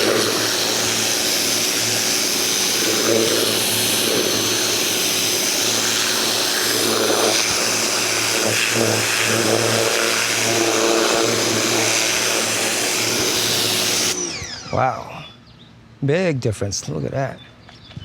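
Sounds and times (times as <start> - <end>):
high-pressure water jet hissing: 0.0 - 14.6
pressure washer motor humming: 0.0 - 15.2.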